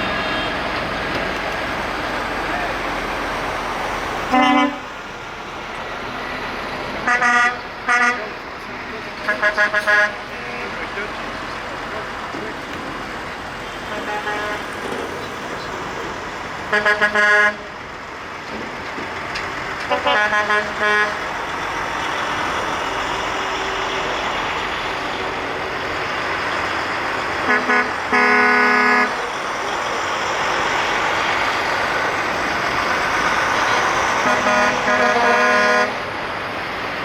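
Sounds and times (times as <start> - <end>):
truck air horns tooting: 0.0 - 1.4, 4.3 - 4.9, 7.0 - 11.0, 13.8 - 14.8, 16.7 - 17.8, 19.8 - 21.4, 27.2 - 29.3, 31.4 - 36.2
rumble of passing trucks: 0.0 - 37.0.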